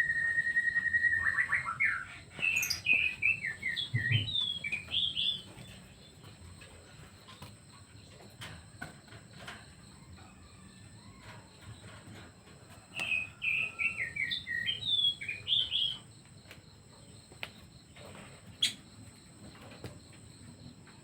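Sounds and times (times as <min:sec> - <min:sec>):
bird chirping and whistling: 0:00.0 - 0:05.4, 0:13.0 - 0:16.0.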